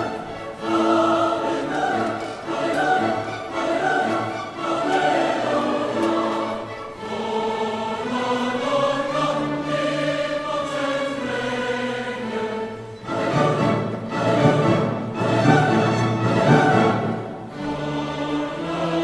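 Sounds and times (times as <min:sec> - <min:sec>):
choir breath: 0:00.0 - 0:14.7
choir singing held chords: 0:00.0 - 0:19.0.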